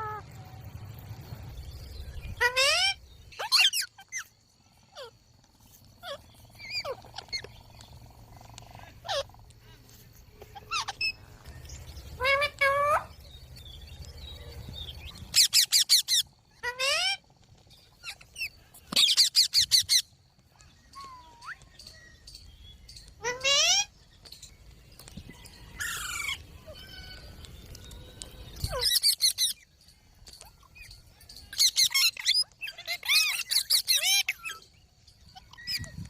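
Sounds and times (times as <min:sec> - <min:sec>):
parakeet calling: 0:02.2 - 0:05.2, 0:06.0 - 0:09.4, 0:10.4 - 0:13.2, 0:14.4 - 0:20.1, 0:22.9 - 0:24.0
parakeet screeching: 0:02.4 - 0:04.3, 0:06.0 - 0:07.5, 0:09.0 - 0:09.3, 0:10.5 - 0:11.2, 0:12.2 - 0:13.1, 0:15.3 - 0:17.2, 0:23.2 - 0:23.9, 0:28.6 - 0:29.6, 0:31.6 - 0:34.6.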